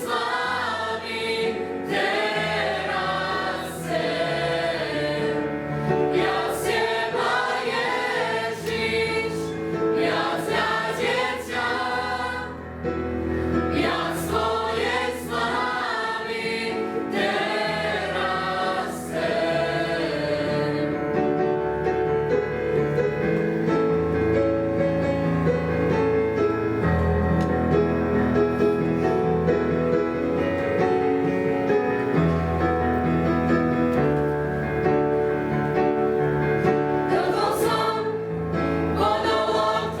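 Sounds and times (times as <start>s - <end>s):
choir singing gospel song: 0.0s - 12.6s, 13.5s - 21.3s, 36.7s - 40.0s.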